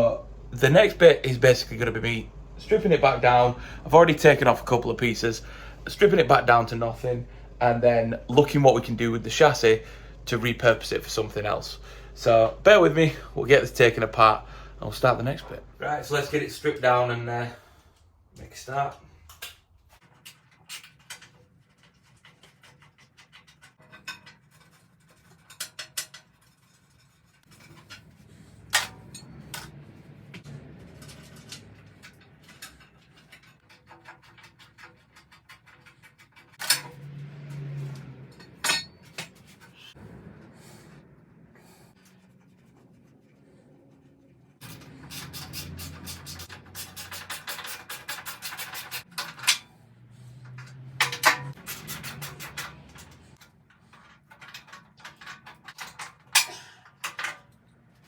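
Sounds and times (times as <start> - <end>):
metal tools clinking and scraping: 18.8 - 29.9, 30.8 - 40.0, 44.6 - 58.0.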